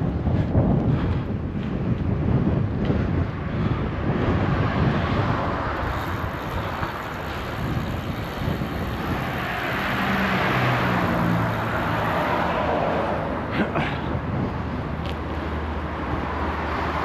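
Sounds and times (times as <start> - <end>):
street traffic: 0.0 - 17.0
wind rushing over microphone: 0.0 - 17.0
vehicle engine: 3.6 - 17.0.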